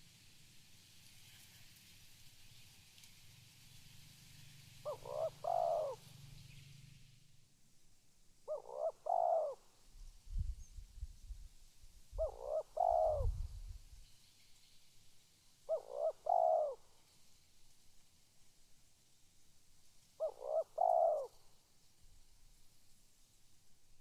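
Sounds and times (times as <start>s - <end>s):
dove cooing: 4.8s - 6.4s, 8.5s - 9.7s, 12.2s - 13.7s, 15.7s - 16.8s, 20.2s - 21.4s.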